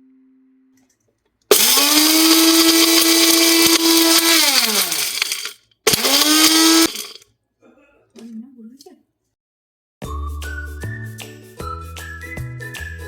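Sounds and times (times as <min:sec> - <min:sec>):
mixer grinder motor running: 0:01.5 - 0:07.2.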